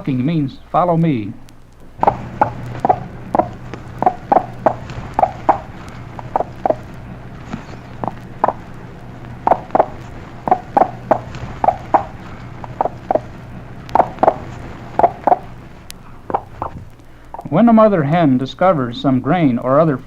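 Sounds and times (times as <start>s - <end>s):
low hum: 0.0s - 20.0s
hen clucking: 2.0s - 17.6s.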